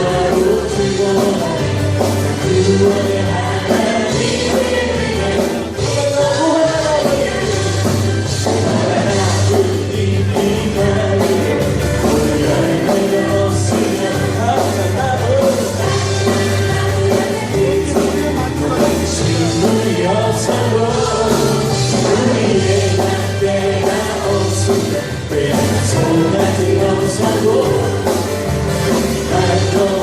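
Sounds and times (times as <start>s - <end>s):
band playing worship song: 0.0s - 30.0s
person singing: 0.0s - 30.0s
steady bass line: 0.0s - 30.0s.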